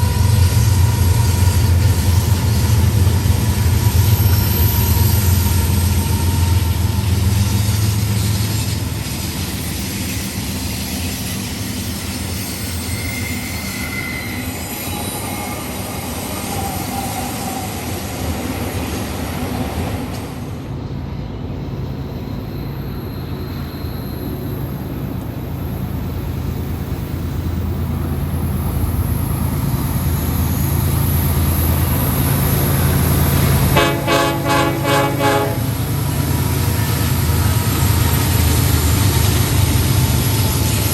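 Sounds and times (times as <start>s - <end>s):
train rumbling: 0.0s - 40.9s
train horn: 33.5s - 36.1s.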